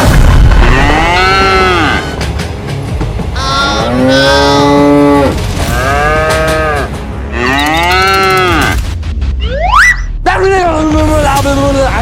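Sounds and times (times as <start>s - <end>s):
cow mooing: 3.4s - 8.8s.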